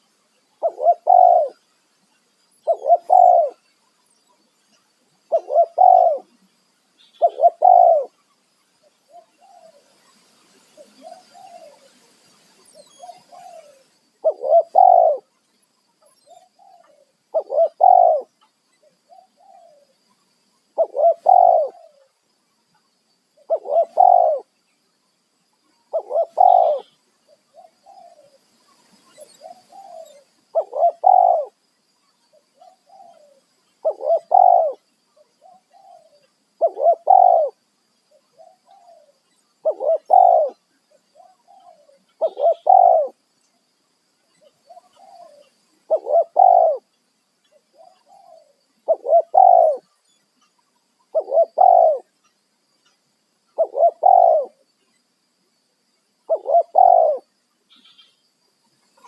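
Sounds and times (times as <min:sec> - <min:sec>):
dove cooing: 0:00.6 - 0:01.6, 0:02.6 - 0:03.6, 0:05.3 - 0:06.4, 0:07.2 - 0:08.2, 0:10.8 - 0:11.9, 0:12.9 - 0:15.3, 0:16.3 - 0:18.3, 0:19.1 - 0:19.9, 0:20.8 - 0:22.1, 0:23.4 - 0:24.5, 0:25.9 - 0:28.4, 0:29.3 - 0:31.6, 0:32.3 - 0:34.8, 0:35.4 - 0:43.2, 0:44.4 - 0:46.9, 0:47.7 - 0:49.9, 0:51.1 - 0:52.1, 0:53.6 - 0:54.6, 0:56.3 - 0:58.1.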